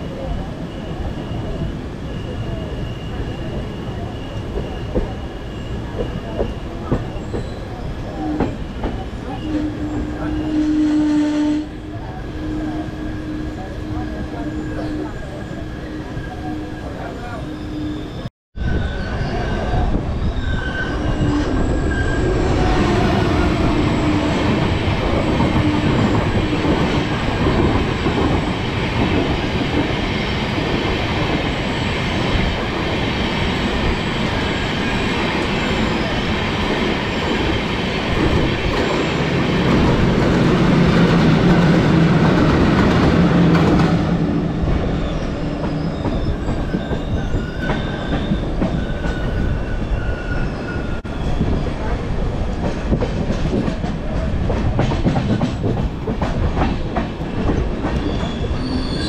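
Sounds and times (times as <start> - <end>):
train wheels rumbling on track: 0.0 - 59.0
rail clatter: 51.7 - 59.0.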